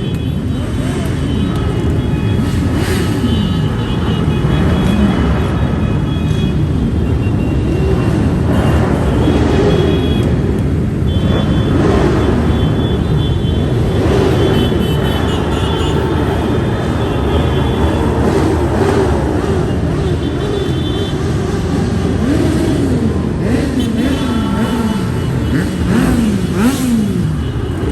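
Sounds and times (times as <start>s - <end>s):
motorcycles revving past: 2.4s - 3.6s, 13.8s - 27.9s.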